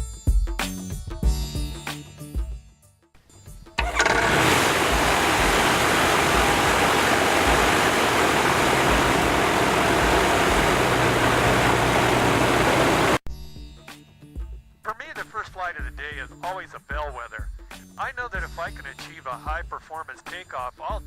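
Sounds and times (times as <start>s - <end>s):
airplane engine and wind rush: 3.8s - 13.2s.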